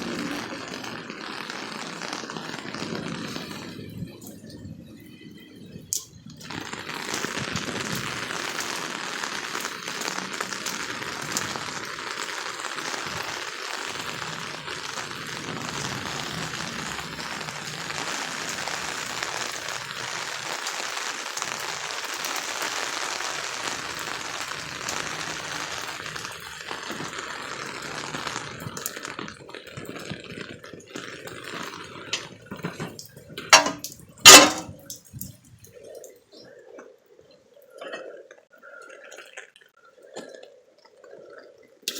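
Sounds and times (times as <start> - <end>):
pouring water hiss: 0.0 - 36.1
water dripping: 32.2 - 37.9.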